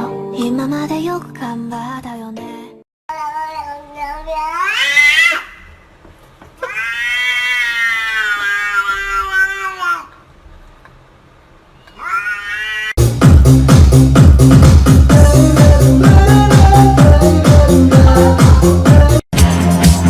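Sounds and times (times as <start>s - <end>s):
cat meowing: 3.1s - 5.7s, 6.6s - 10.2s, 11.9s - 13.0s
dance music: 13.0s - 20.0s.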